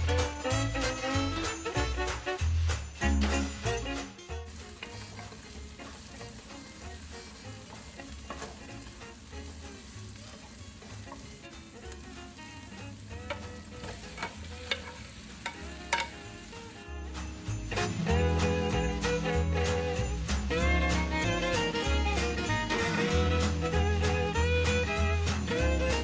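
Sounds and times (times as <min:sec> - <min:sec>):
food sizzling in a pan: 0:00.0 - 0:25.6
utensil scraping a pan: 0:12.5 - 0:16.4.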